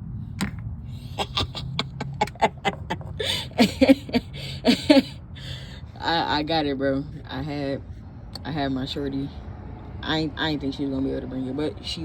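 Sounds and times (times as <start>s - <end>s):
man laughing excitedly: 1.0s - 5.2s.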